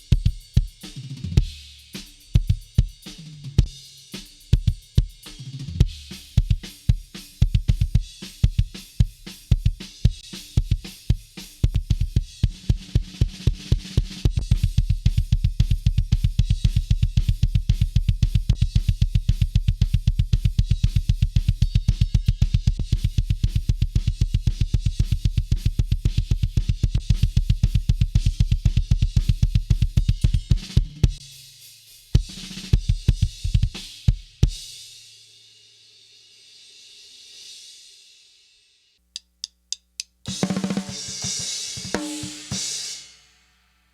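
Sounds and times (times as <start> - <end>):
fast double-bass kick drumming: 5.8 - 31.2, 32.2 - 34.4
metal drum kit playing: 40.3 - 43.0.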